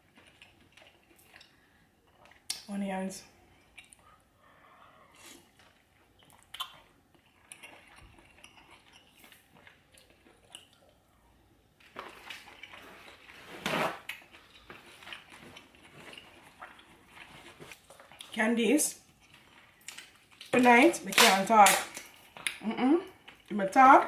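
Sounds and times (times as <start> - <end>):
chewing: 0.0 - 2.7, 3.4 - 18.4, 19.0 - 20.6.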